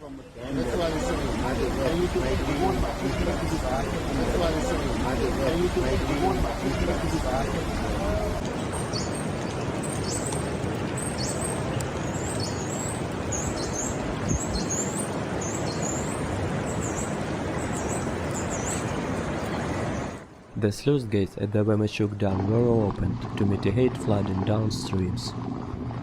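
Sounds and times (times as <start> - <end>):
steady loud rushing noise: 0.4 - 8.6.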